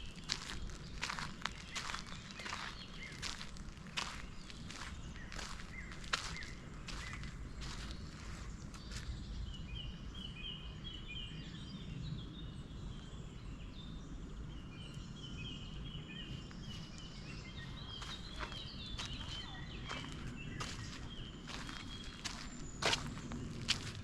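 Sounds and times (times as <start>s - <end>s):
footsteps on path: 0.0s - 9.2s, 16.4s - 24.0s
songbird chirping: 0.0s - 24.0s.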